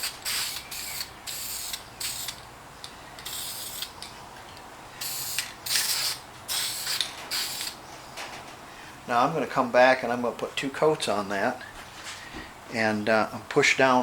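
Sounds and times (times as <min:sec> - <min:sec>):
aerosol spray can hissing: 0:00.0 - 0:02.4, 0:03.2 - 0:03.9, 0:05.0 - 0:07.8.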